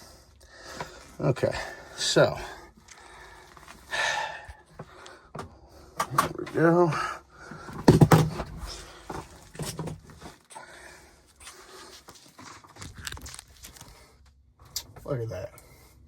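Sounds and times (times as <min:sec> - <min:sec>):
tools knocking and clattering: 0:07.7 - 0:10.1.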